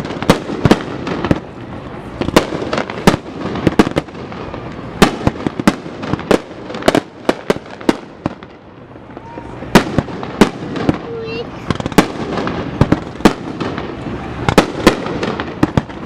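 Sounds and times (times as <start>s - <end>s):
fireworks bangs and cracks: 0.0s - 16.0s.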